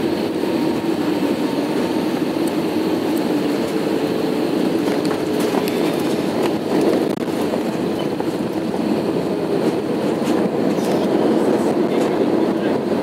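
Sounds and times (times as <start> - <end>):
jet engines and airflow roar: 0.0 - 13.0.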